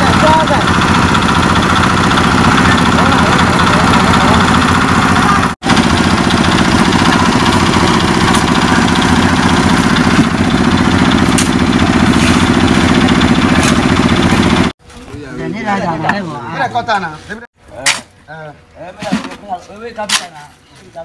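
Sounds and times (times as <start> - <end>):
engine chugging: 0.0 - 14.8.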